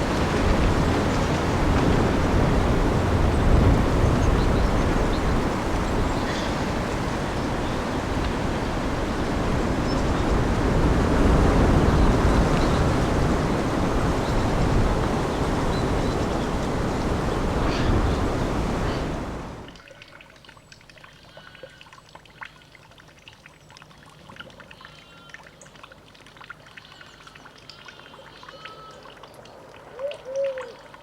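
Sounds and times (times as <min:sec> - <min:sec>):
storm wind gusting: 0:00.0 - 0:19.7.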